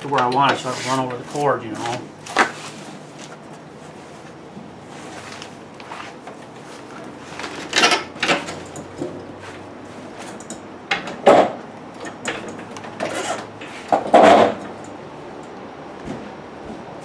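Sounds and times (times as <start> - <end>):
refrigerator scraping on floor: 0.5 - 7.7.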